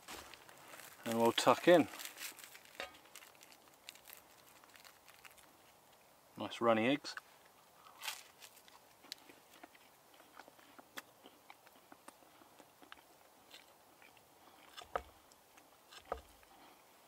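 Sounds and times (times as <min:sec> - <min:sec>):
person chewing: 0:07.8 - 0:16.3.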